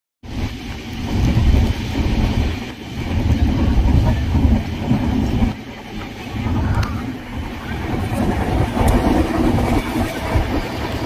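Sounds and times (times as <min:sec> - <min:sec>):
train rumbling from inside coach: 0:00.2 - 0:11.0.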